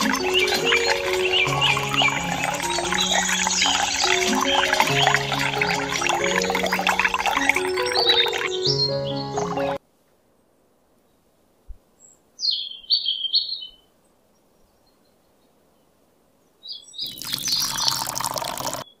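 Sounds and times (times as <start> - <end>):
water splashing into plastic trough: 0.0 - 8.4
high bird chirps: 0.0 - 9.8, 12.4 - 13.9, 16.6 - 19.0.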